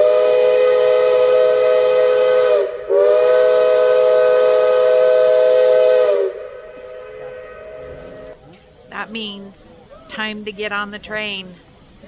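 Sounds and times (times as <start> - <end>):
steam hissing: 0.0 - 8.4
steam locomotive whistle blasts: 0.0 - 8.4.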